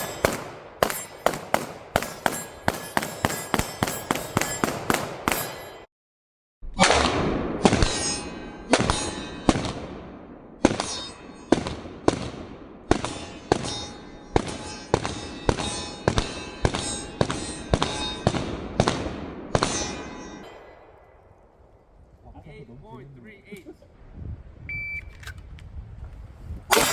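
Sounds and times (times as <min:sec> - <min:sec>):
pistol shots with echo: 0:00.0 - 0:05.9.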